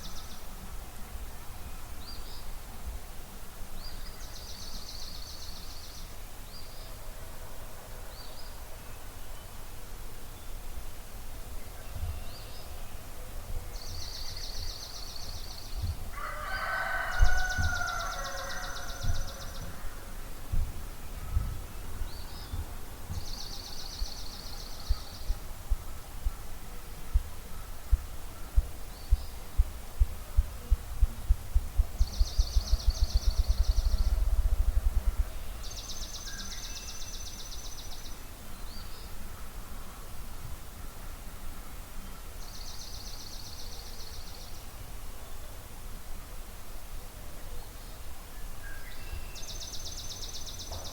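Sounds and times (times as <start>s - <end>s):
rooster crowing: 16.1s - 19.6s
songbird trills: 35.2s - 40.0s.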